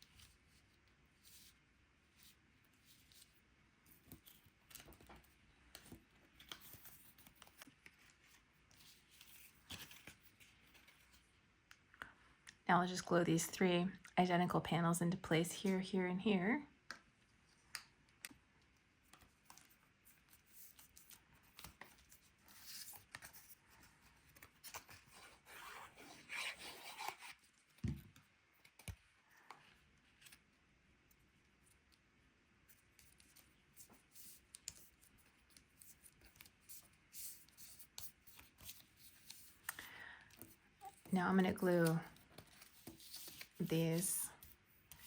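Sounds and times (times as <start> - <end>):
cardstock rustling and rubbing: 40.4 - 45.0.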